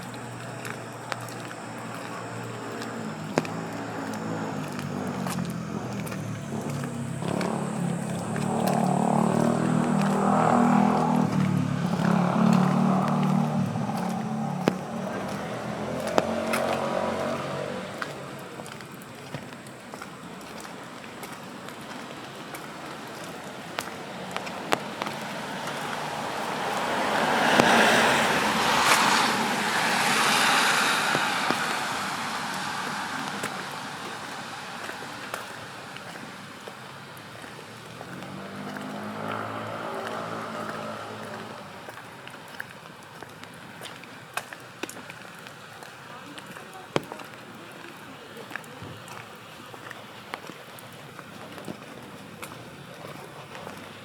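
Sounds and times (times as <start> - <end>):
car engine hum: 0.0 - 42.9
tyre hiss on wet street: 0.0 - 54.0.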